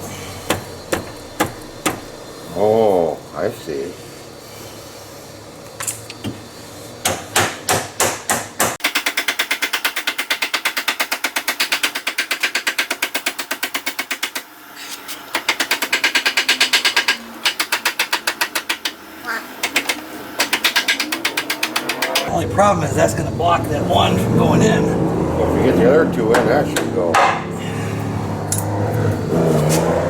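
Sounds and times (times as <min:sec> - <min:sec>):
ratchet wrench clicking: 0:15.4 - 0:19.0, 0:19.6 - 0:22.3.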